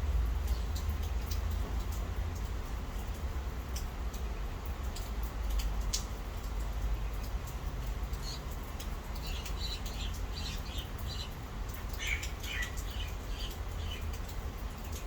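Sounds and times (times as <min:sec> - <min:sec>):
bird chirping: 0:08.1 - 0:14.2.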